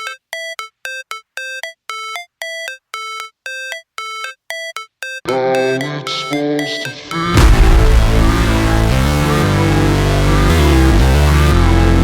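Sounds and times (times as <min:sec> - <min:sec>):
bell-like synth tones: 0:00.0 - 0:07.5
electronic beat with bass: 0:00.0 - 0:12.0.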